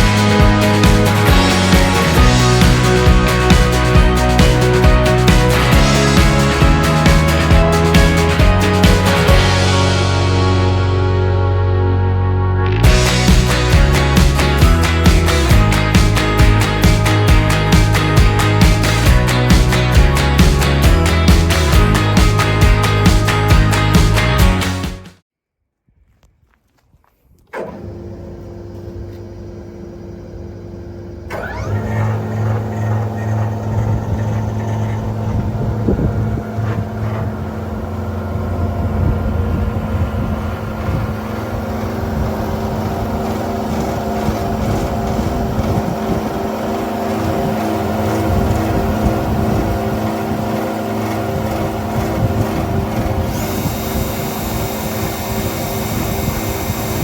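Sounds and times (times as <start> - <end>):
electric motors humming: 27.6 - 57.0.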